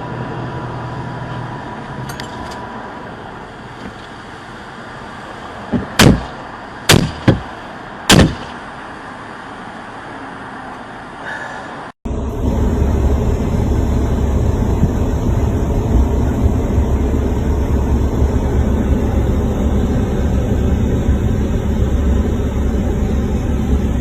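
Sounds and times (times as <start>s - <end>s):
vehicle and road noise: 0.0s - 24.0s
loud sharp bangs: 5.8s - 8.6s.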